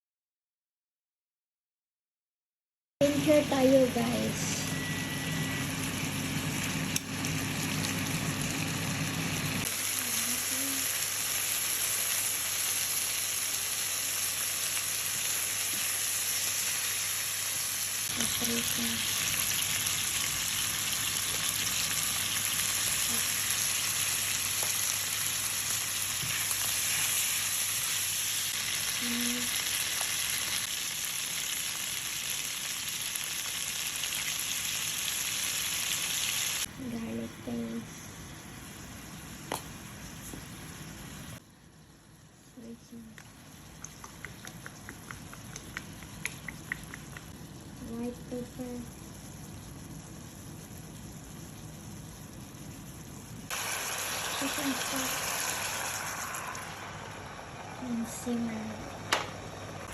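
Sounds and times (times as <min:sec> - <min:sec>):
chicken frying in hot oil: 0:05.0 - 0:36.7, 0:42.6 - 0:59.9.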